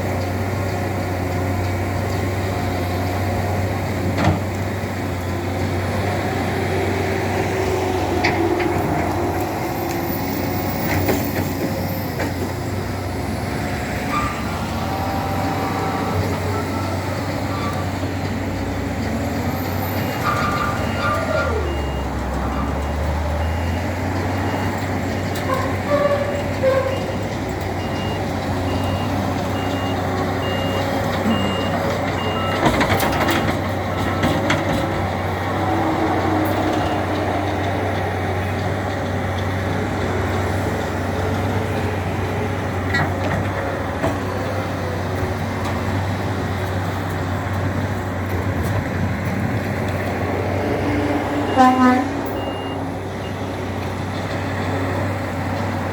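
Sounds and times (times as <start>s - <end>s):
loader engine running: 0.0s - 55.9s
reversing alarm beeping: 20.8s - 22.2s, 22.8s - 25.4s, 27.8s - 32.7s, 51.4s - 53.4s.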